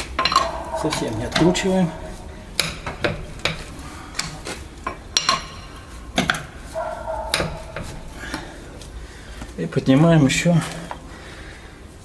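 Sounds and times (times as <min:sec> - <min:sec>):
wheel wrench clinking on bolts: 0:00.0 - 0:09.4.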